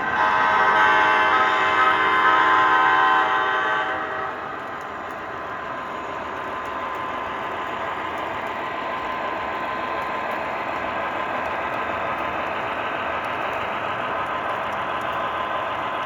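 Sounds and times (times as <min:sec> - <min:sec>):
model diesel engine sounds: 0:00.0 - 0:16.0
model trains rumbling on track: 0:00.0 - 0:16.0.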